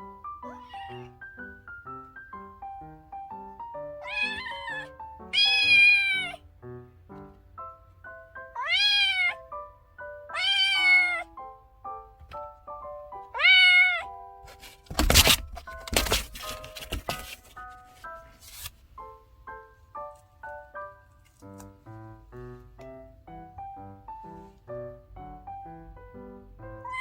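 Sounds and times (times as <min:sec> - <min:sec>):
kitten meowing: 0:00.4 - 0:01.2, 0:04.0 - 0:06.4, 0:08.5 - 0:09.5, 0:10.3 - 0:11.3, 0:13.3 - 0:14.1, 0:26.8 - 0:27.0.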